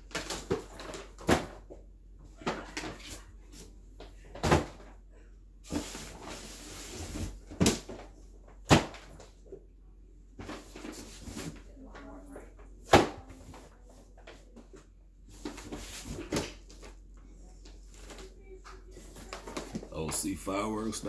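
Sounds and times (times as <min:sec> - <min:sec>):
cardboard scraping and rustling: 0:15.3 - 0:16.9.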